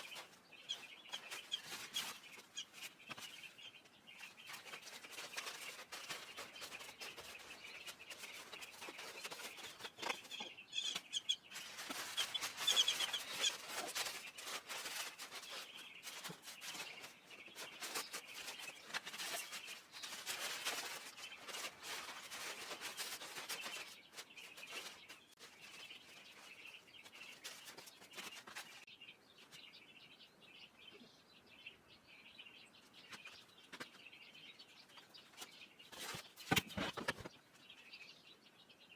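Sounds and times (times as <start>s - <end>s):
crackling and rustling: 0.0s - 29.8s, 32.8s - 37.9s
small birds chirping: 0.0s - 38.9s.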